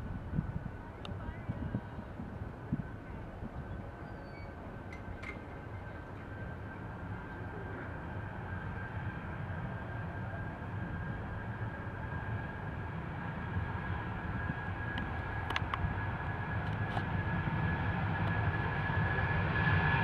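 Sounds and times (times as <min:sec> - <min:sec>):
jet engines rumbling and whining: 0:00.0 - 0:20.0.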